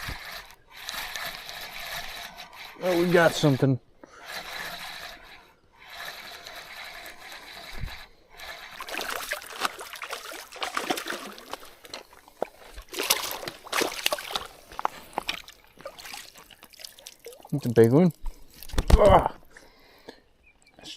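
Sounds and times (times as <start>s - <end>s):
fish splashing water: 8.4s - 17.6s.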